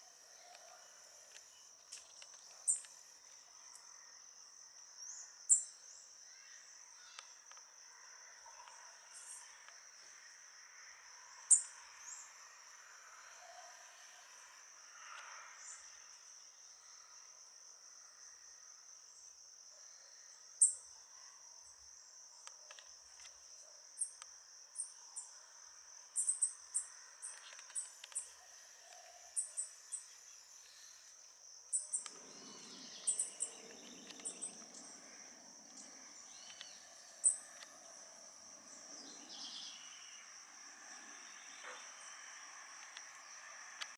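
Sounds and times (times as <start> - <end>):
small birds chipping: 0.0 - 3.3, 31.7 - 40.2
insect trilling: 26.2 - 43.9.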